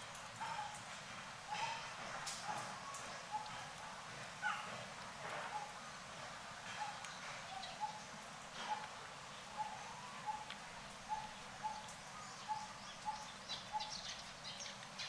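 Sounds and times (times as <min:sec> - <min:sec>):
animal call: 0:09.5 - 0:10.5.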